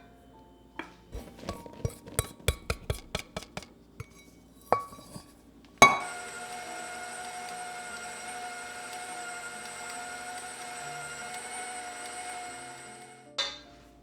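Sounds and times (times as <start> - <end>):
glassware clinking: 0.8 - 6.2, 13.4 - 13.7
small machine humming and whining: 5.8 - 13.4.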